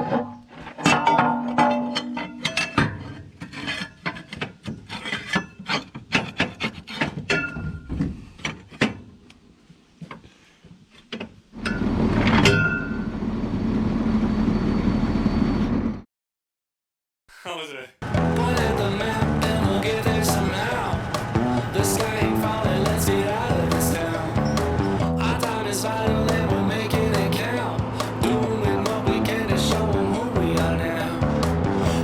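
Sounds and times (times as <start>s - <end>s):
machine running: 18.0s - 32.0s
hand tools on metal: 18.3s - 31.1s.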